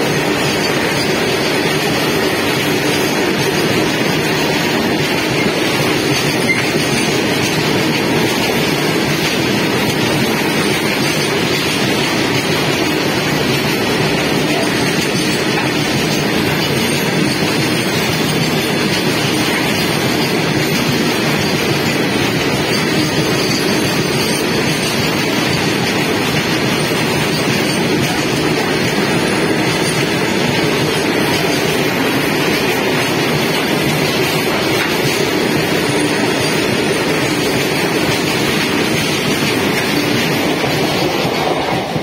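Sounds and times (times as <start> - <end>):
train wheels rolling on rails: 0.0 - 42.0.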